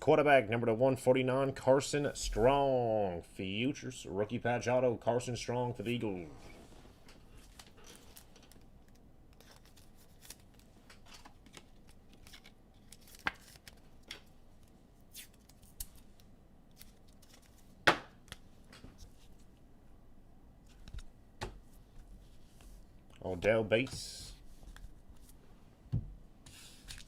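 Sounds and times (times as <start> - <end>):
trading cards and wrappers rustling: 7.2 - 19.4.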